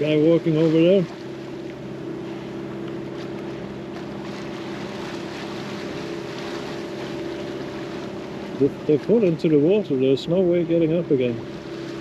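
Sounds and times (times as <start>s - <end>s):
boat engine droning: 0.0s - 12.0s
water noise: 0.0s - 12.0s
wind: 0.0s - 12.0s.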